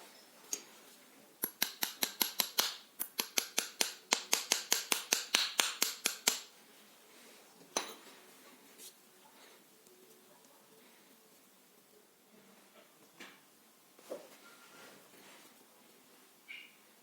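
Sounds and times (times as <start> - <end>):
sharp metallic clicks: 1.4 - 6.5.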